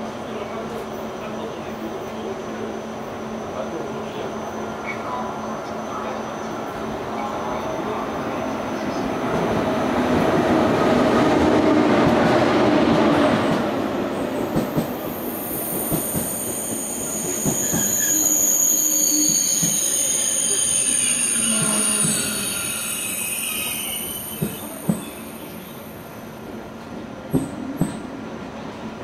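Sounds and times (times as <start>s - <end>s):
high-speed train rushing past: 0.0s - 29.0s
train sharp clacks: 14.4s - 15.0s, 15.7s - 18.0s, 21.4s - 22.4s, 24.3s - 25.2s, 27.3s - 28.1s
high-pitched train squeal: 15.0s - 26.5s.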